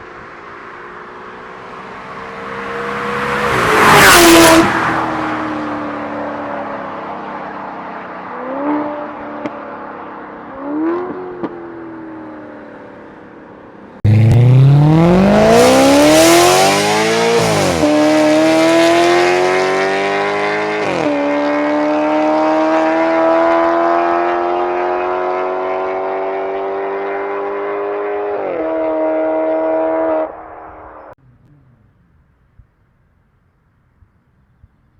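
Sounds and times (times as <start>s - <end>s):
car engine accelerating hard: 0.2s - 6.9s, 14.0s - 31.0s.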